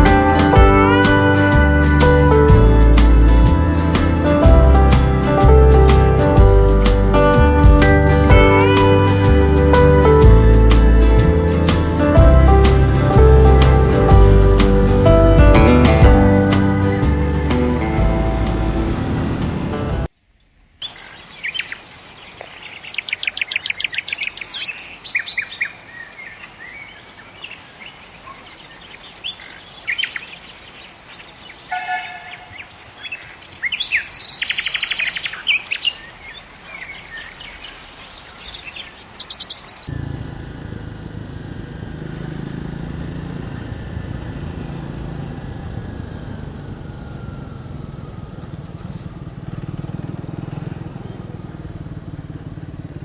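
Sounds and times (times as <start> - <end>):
motorcycle engine drone: 0.0 - 20.1, 39.8 - 53.0
birds chirping and trilling: 20.8 - 53.0.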